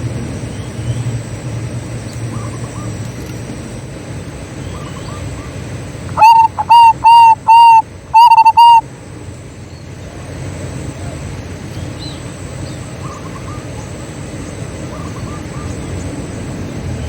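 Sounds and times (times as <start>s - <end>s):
dove cooing song: 4.8s - 8.8s
faint dove coos: 6.1s - 8.8s.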